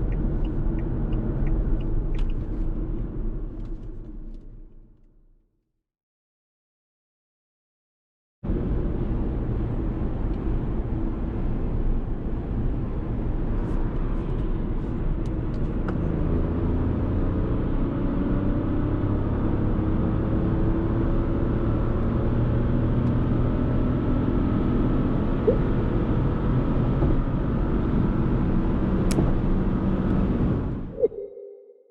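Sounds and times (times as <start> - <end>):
road and tyre noise: 0.0 - 5.0, 8.4 - 31.7
car engine running: 25.2 - 27.6.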